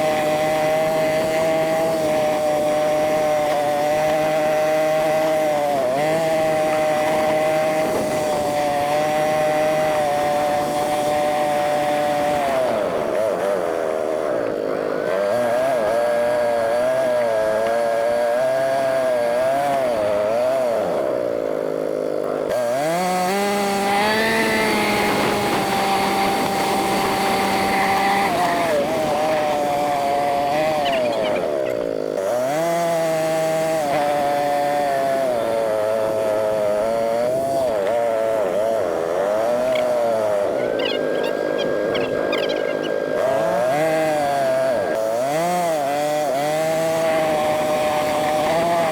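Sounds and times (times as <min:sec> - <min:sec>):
sped-up atv engine revving: 0:00.0 - 0:48.9.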